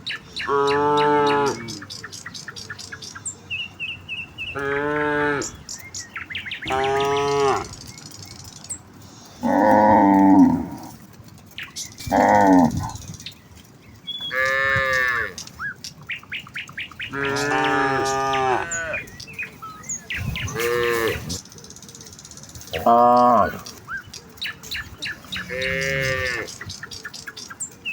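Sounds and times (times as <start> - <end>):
birds chirping: 0.0 - 27.9
cattle mooing: 0.5 - 1.8, 4.6 - 5.6, 6.6 - 7.8, 9.4 - 11.1, 12.0 - 13.0, 14.3 - 15.4, 17.1 - 19.1, 20.2 - 21.4, 25.3 - 26.6.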